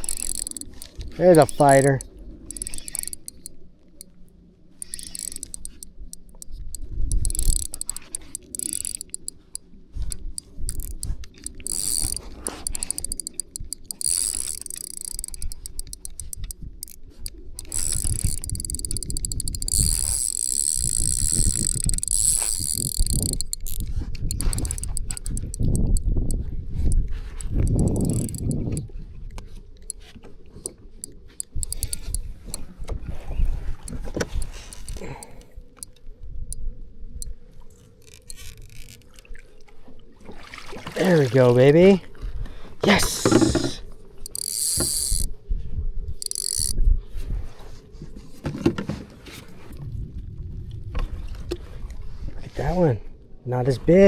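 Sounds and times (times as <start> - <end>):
fishing reel gears whirring: 0.0 - 4.2, 4.8 - 28.9, 30.6 - 32.6, 33.8 - 36.0, 38.0 - 39.2, 43.2 - 45.4, 46.1 - 46.8
wind rumbling on microphone: 13.6 - 39.4, 44.8 - 54.0.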